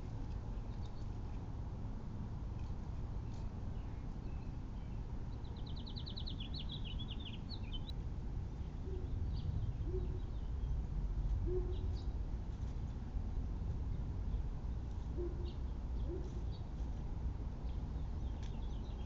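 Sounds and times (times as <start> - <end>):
low background rumble: 0.0 - 19.0
songbird trilling: 5.4 - 7.9.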